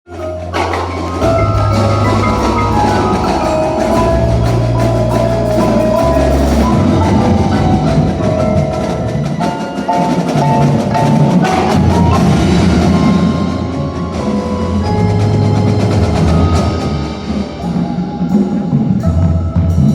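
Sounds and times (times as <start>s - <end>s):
drum strokes: 0.1s - 19.9s
marimba notes: 0.1s - 19.9s
long low bass notes: 1.2s - 9.2s.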